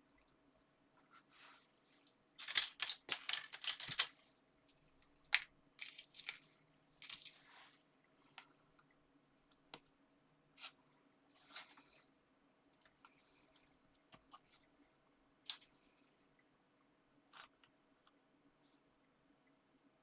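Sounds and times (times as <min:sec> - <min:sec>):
paper rustling: 0:02.4 - 0:04.2.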